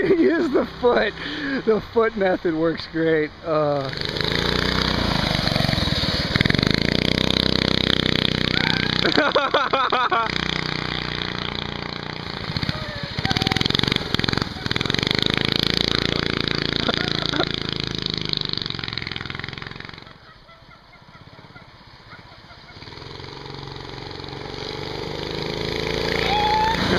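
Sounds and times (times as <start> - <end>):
small engines revving: 3.6 - 20.3, 21.1 - 26.9
wavering voice-like sound: 8.5 - 9.0.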